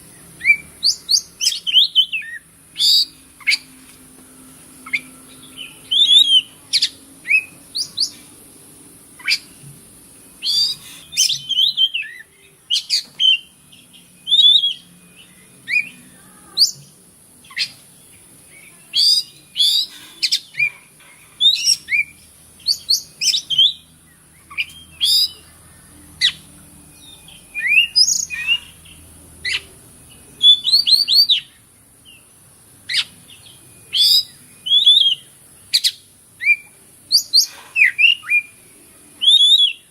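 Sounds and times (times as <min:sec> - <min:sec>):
bird singing whistled notes: 0:00.0 - 0:03.7, 0:04.8 - 0:08.2, 0:10.3 - 0:20.8, 0:21.4 - 0:25.5, 0:26.1 - 0:32.3, 0:32.9 - 0:39.9.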